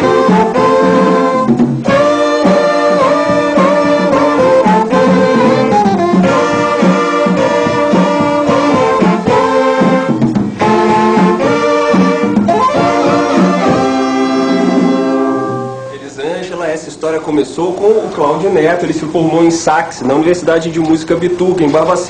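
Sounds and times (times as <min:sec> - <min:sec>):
wind ensemble with saxophones: 0:00.0 - 0:16.1.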